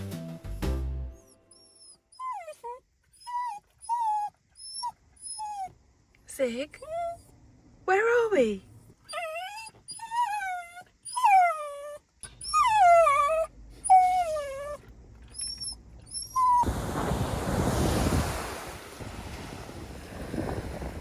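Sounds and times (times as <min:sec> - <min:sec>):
dog whining: 0:01.2 - 0:05.8, 0:06.8 - 0:07.3, 0:08.8 - 0:16.7
short high squeaks: 0:15.3 - 0:16.6.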